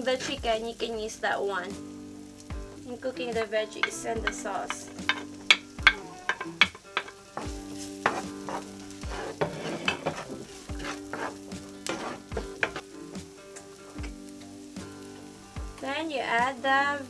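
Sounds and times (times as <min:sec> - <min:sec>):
utensil scraping a pan: 0:00.0 - 0:00.9, 0:02.5 - 0:14.1
onion sizzling in oil: 0:00.0 - 0:17.0.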